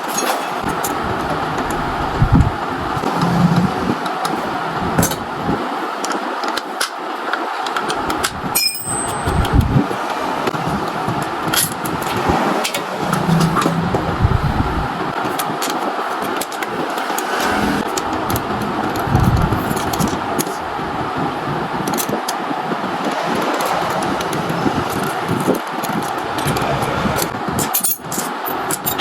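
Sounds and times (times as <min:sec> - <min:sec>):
traffic and street noise: 0:00.0 - 0:29.0
low rumbles: 0:00.6 - 0:05.6, 0:08.0 - 0:15.3
sharp metallic clinks: 0:08.6 - 0:09.6.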